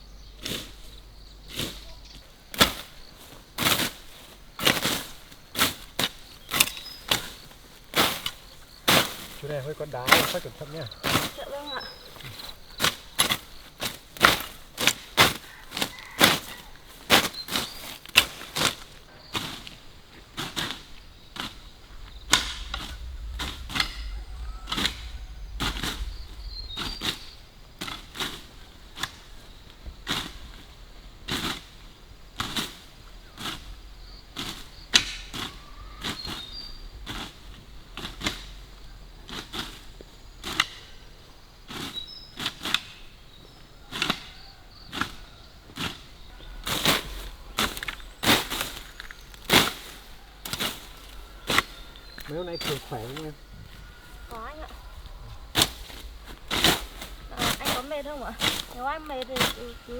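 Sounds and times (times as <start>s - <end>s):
hoes striking stony soil: 34.4s - 35.6s.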